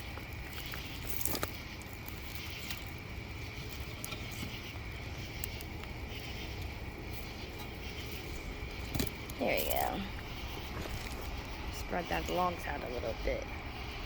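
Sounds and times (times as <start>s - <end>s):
campfire crackling and popping: 0.0s - 14.0s
insects droning: 0.0s - 14.0s.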